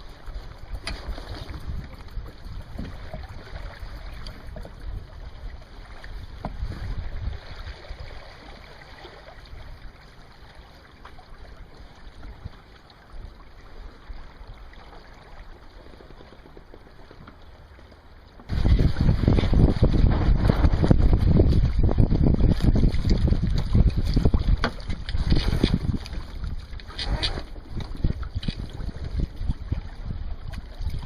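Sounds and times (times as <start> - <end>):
wind rumbling on microphone: 0.0 - 10.2, 18.4 - 31.0.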